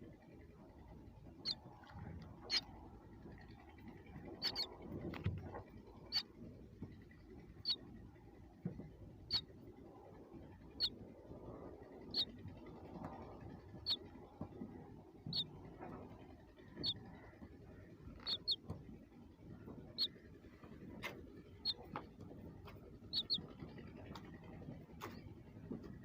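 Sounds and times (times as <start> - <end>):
baby birds peeping: 1.4 - 6.3, 7.6 - 7.8, 10.6 - 11.0, 12.0 - 12.4, 13.1 - 16.0, 16.6 - 17.4, 18.0 - 18.8, 21.0 - 22.1, 23.1 - 24.2.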